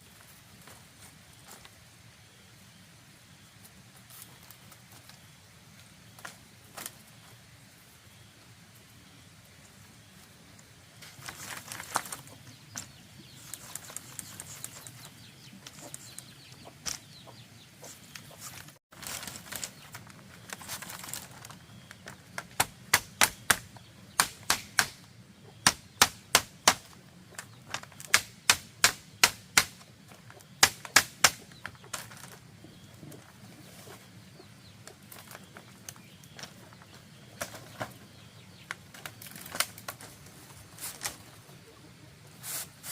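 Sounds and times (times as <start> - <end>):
sharp knocks on bamboo: 22.4 - 27.0, 27.7 - 29.9, 30.6 - 31.6.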